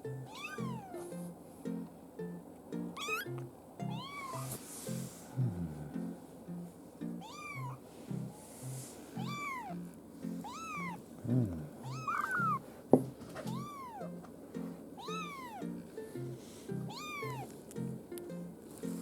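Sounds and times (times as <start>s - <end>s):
kitten mewing: 0.2s - 1.0s, 3.0s - 4.6s, 7.2s - 7.8s, 9.2s - 9.8s, 10.4s - 12.6s, 13.4s - 14.2s, 15.0s - 15.6s, 16.8s - 17.5s.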